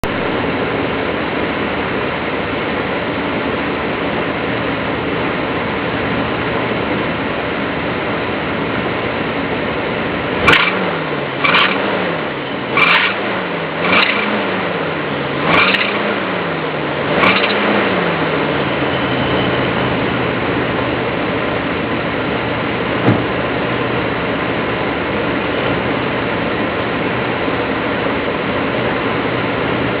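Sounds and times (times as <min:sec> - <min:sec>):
car engine idling and revving: 0:00.0 - 0:30.0
high squeal: 0:18.5 - 0:20.0.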